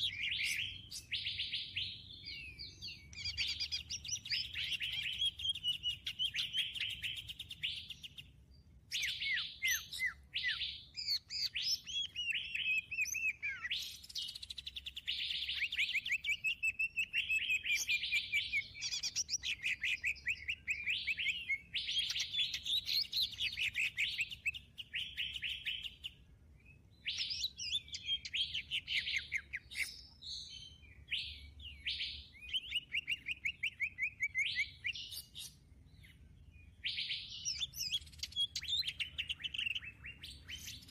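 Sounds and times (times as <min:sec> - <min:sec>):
songbirds chattering trills: 0:00.0 - 0:40.9.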